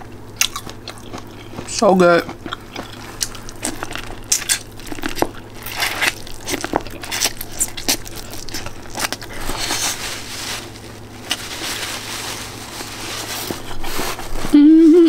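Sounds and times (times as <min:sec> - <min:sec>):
person crunching food: 0:00.3 - 0:14.4.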